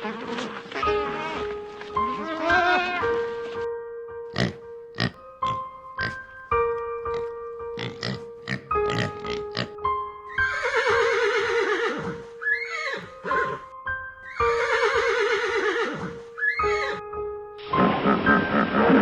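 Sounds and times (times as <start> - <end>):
horse whinnying: 0.0 - 3.2, 10.3 - 13.7, 14.3 - 17.0
keyboard background music: 0.0 - 19.0.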